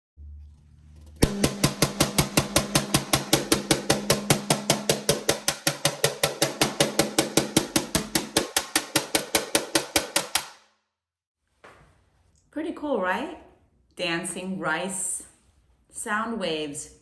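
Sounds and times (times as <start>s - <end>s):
metal spoon banging on pan: 1.2s - 10.5s.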